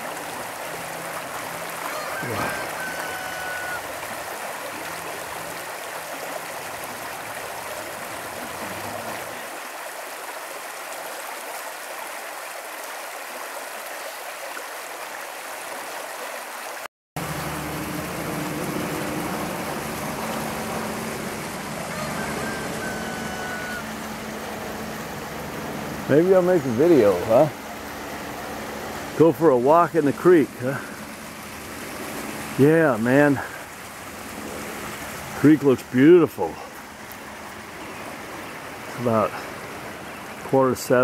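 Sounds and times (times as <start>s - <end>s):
creek water running over rocks: 0.0s - 41.0s
low steady hum: 17.2s - 35.4s.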